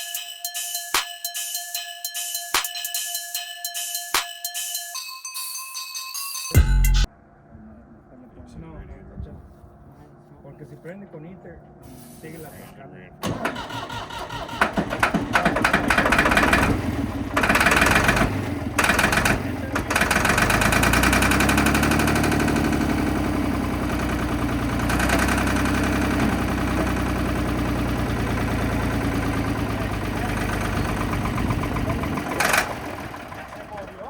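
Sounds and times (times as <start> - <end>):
diesel engine cranking: 12.5 - 34.0
diesel engine running unevenly: 13.2 - 34.0.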